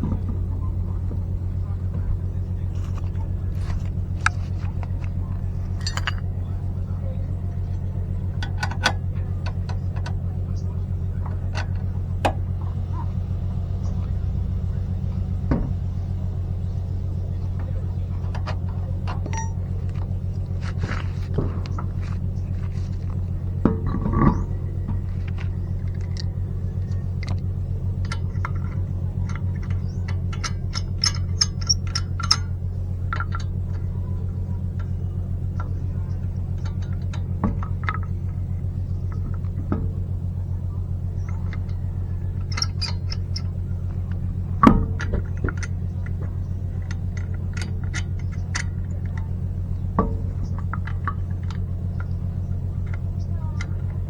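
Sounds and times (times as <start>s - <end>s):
steady low hum: 0.0s - 54.0s
metallic clicks and clinks: 2.8s - 6.3s, 41.2s - 44.2s.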